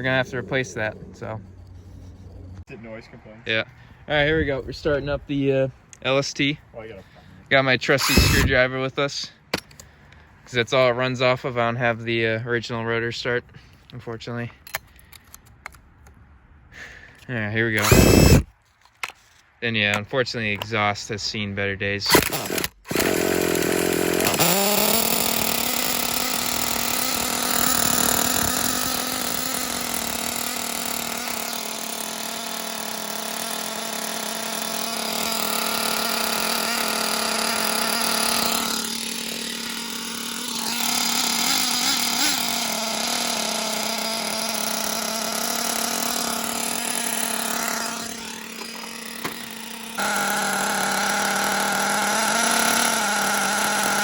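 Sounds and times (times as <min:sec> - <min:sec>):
small nitro engine buzzing: 0:07.9 - 0:08.6, 0:17.8 - 0:18.5, 0:22.1 - 0:54.0.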